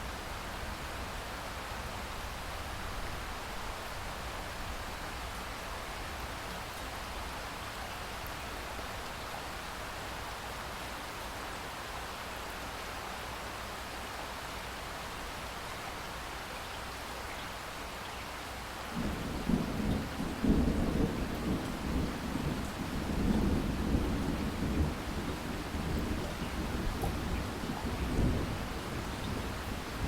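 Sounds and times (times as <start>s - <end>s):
steady rain falling: 0.0s - 30.0s
low rumble of thunder: 18.9s - 30.0s.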